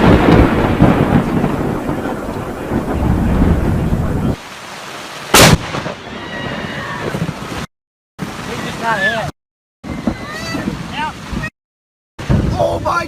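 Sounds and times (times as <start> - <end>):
loud thunderclap crack: 0.0 - 4.4, 5.3 - 7.5
thunder rumbling: 0.0 - 4.4, 5.4 - 7.5.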